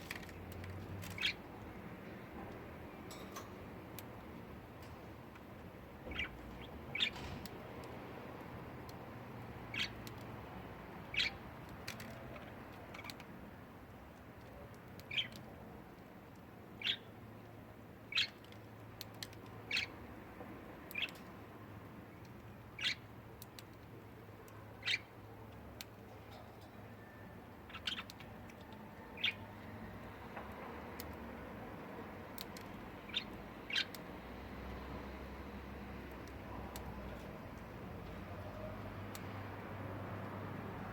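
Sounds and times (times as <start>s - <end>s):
budgerigar chirps: 11.1s - 11.4s, 24.8s - 25.1s.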